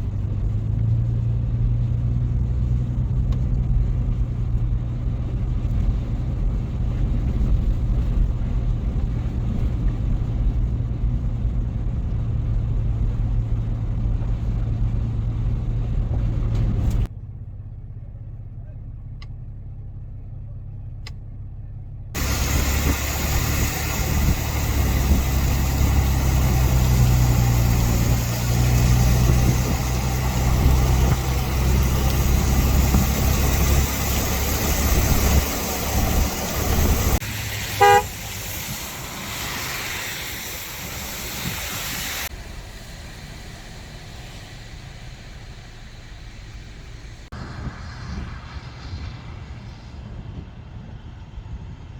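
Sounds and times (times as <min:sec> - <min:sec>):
heavy low rumble: 0:00.0 - 0:51.9
loud rushing noise: 0:22.2 - 0:50.2
car horn toot: 0:37.7 - 0:38.4.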